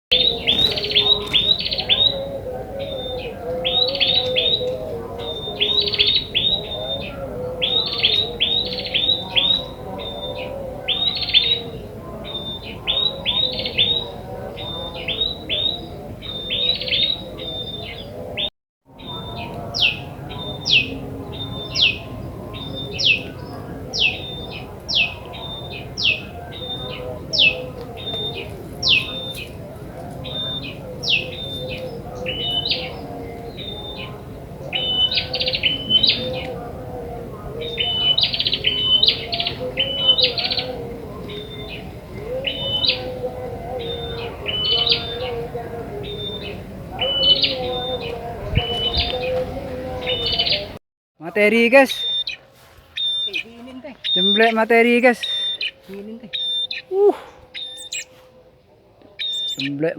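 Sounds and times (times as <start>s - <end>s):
bird chirping: 0.1s - 36.9s, 37.6s - 58.4s, 59.0s - 59.9s
bird sweeping notes: 51.6s - 58.2s.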